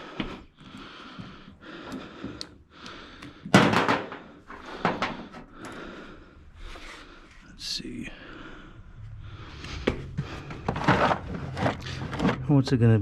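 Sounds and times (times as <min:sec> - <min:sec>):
tools scraping and rustling: 0:09.7 - 0:12.7.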